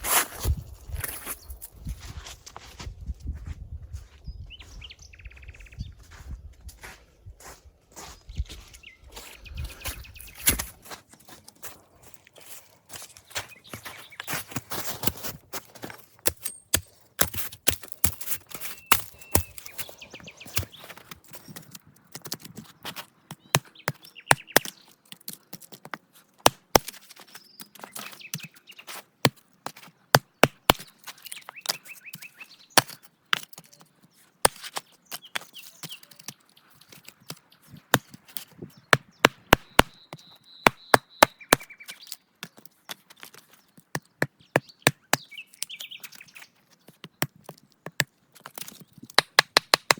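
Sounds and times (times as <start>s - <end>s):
sharp chopping strikes: 16.3s - 19.9s, 38.9s - 40.0s, 40.6s - 41.7s
faint bird chirps: 38.6s - 42.3s.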